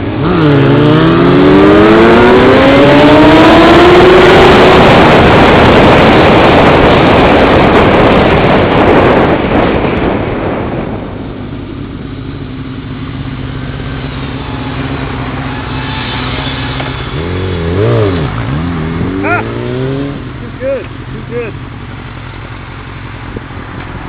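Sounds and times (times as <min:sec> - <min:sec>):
wind rush on microphone: 0:00.0 - 0:12.4, 0:22.4 - 0:24.0
motorcycle engine running: 0:00.0 - 0:24.0.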